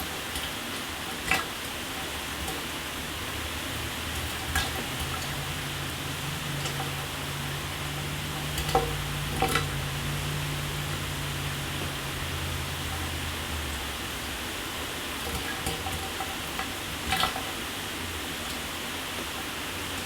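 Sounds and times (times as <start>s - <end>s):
water splashes: 0.0s - 20.0s
low steady hum: 2.4s - 17.6s
shower spray running: 3.3s - 15.6s.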